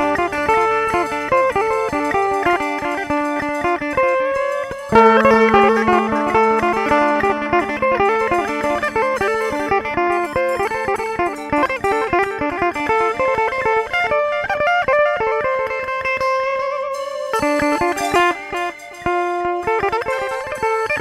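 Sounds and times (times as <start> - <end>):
amplified plucked string notes: 0.0 - 21.0
held drone note: 2.6 - 13.0.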